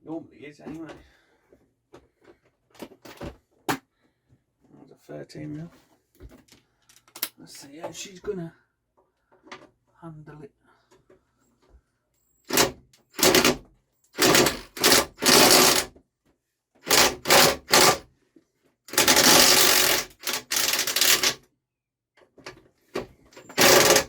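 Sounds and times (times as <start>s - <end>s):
power tool driving bolts: 12.4s - 15.9s, 16.8s - 18.0s, 18.9s - 21.4s, 23.4s - 24.0s.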